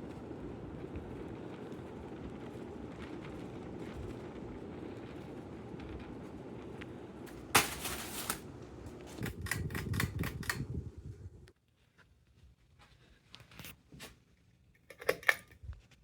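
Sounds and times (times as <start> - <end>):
ceiling fan whooshing: 0.0 - 11.5.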